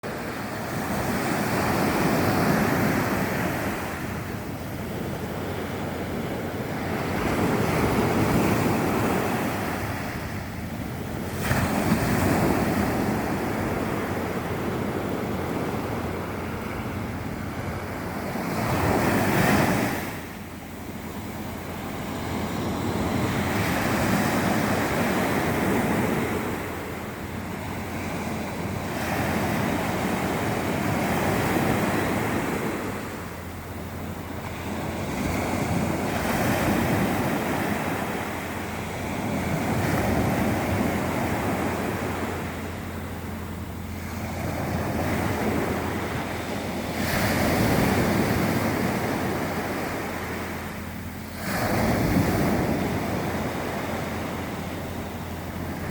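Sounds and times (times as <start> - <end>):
sea waves washing: 0.0 - 55.9
wind buffeting microphone: 0.0 - 55.9.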